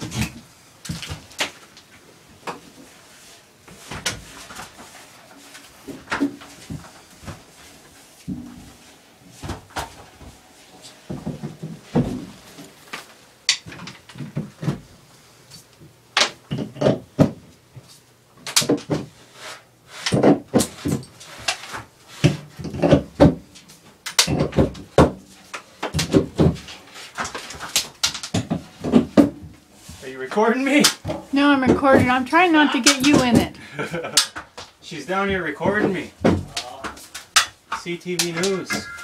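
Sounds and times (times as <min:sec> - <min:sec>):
knocks thumps and clatters: 0:05.8 - 0:14.9, 0:16.2 - 0:17.4, 0:30.8 - 0:33.6, 0:34.3 - 0:39.0.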